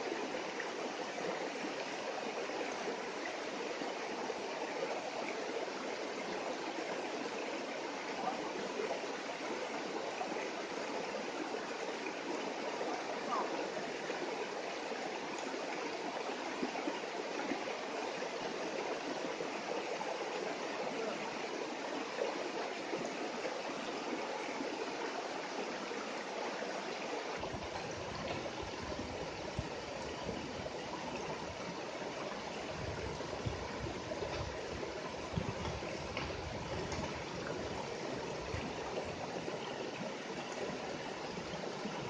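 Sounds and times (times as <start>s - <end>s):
stream water rushing: 0.0s - 42.0s.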